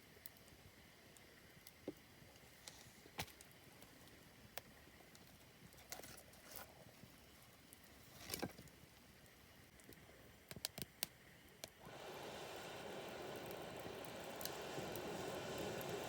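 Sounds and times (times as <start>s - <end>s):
campfire crackling: 0.0s - 16.0s
low hiss: 0.0s - 16.0s.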